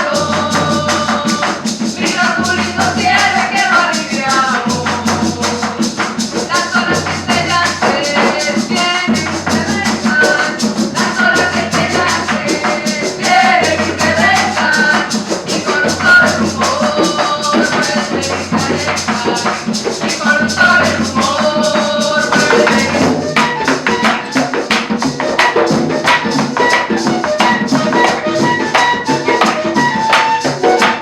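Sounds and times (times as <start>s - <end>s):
fast shaker rhythm: 0.0s - 31.0s
live cumbia band playing: 0.0s - 31.0s.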